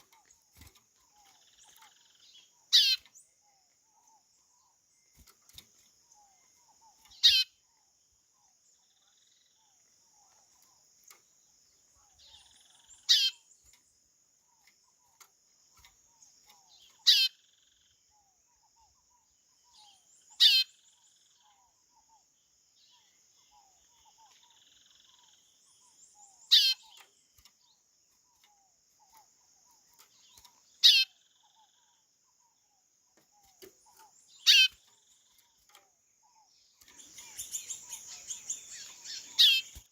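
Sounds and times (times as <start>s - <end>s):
faint high-pitched hiss: 36.5s - 39.9s.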